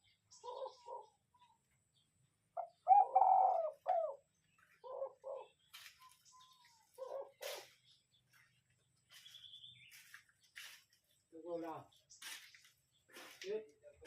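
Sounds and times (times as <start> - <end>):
dove cooing: 0.0 - 1.6, 2.6 - 7.8.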